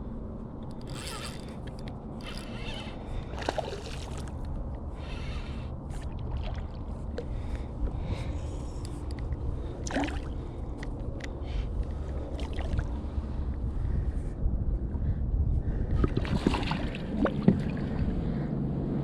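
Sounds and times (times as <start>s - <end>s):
steady low rumble: 0.0s - 19.0s
light knocks and splashes: 3.3s - 4.5s, 16.0s - 17.9s.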